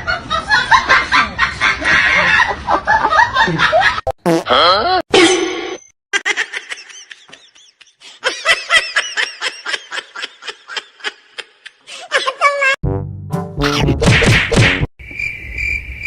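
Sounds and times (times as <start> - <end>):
high-pitched human laughter: 6.2 - 12.8.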